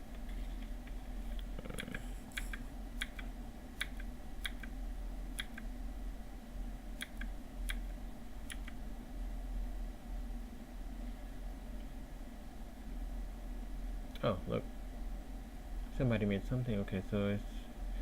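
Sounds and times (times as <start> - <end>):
low electrical hum: 0.0 - 18.0
computer clicks: 5.4 - 5.7, 7.0 - 7.9.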